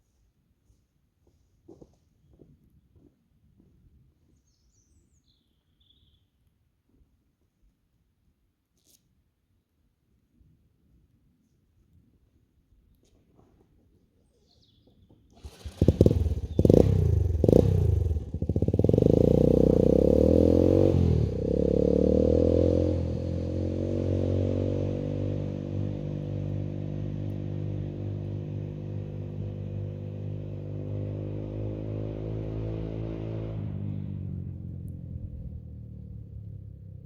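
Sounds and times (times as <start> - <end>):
motorcycle engine revving: 15.4 - 37.0.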